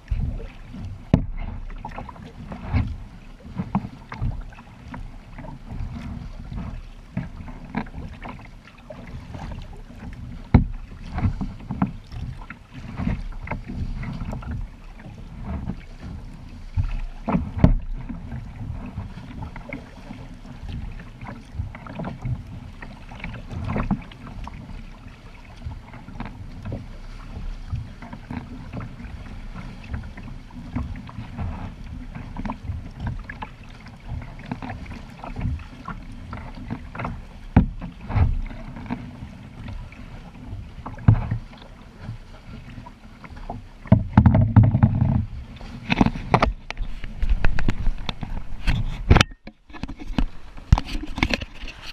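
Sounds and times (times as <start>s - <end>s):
water splashing against kayak: 0.0s - 51.9s.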